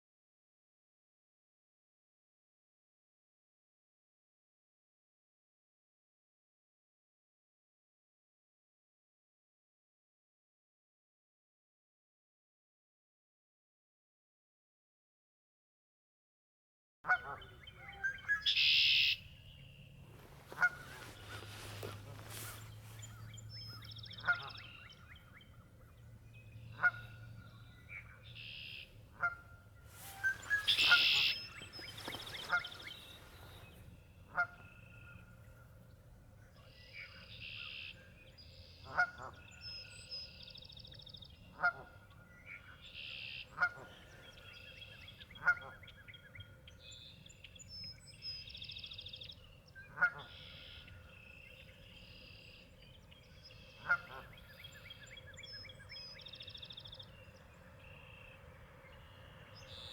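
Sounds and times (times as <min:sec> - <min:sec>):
buzzy high bird calls: 0:29.9 - 0:34.4
short sharp bird call: 0:30.0 - 0:33.7.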